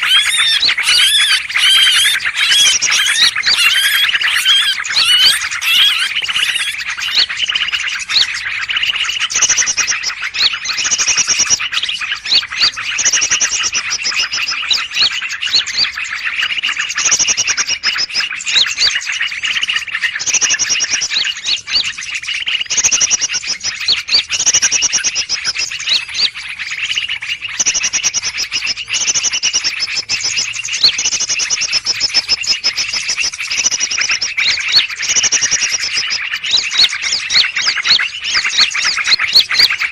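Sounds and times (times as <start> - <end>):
high trilled bird phrases: 0.0 - 13.4, 24.8 - 39.9
small birds chattering: 0.0 - 39.9.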